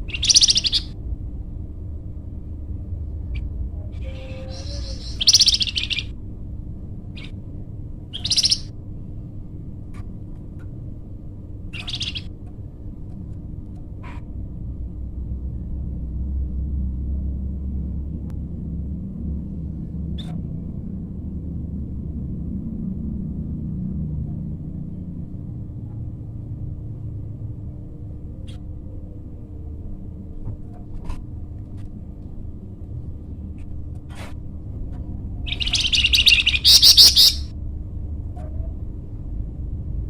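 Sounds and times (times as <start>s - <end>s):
songbird singing: 0.0s - 0.9s, 3.3s - 6.2s, 8.1s - 8.7s, 11.7s - 12.3s, 35.4s - 37.5s
steady low rumble: 0.0s - 40.0s.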